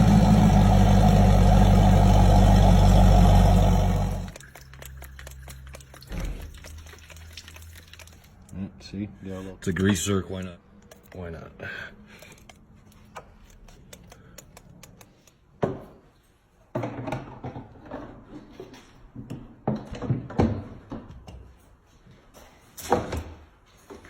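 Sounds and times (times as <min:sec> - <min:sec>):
knocks and thunks of handling: 0:16.7 - 0:21.6.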